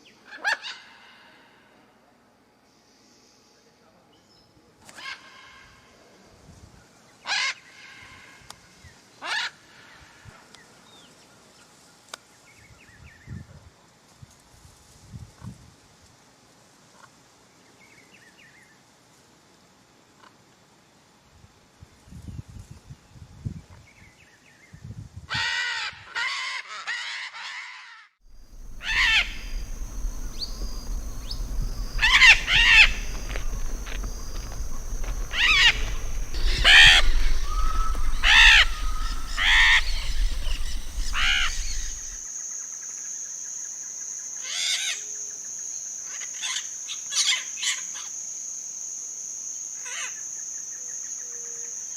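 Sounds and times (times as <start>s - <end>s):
bird harsh calls: 28.3s - 42.2s
faint bird chirps: 28.3s - 42.2s.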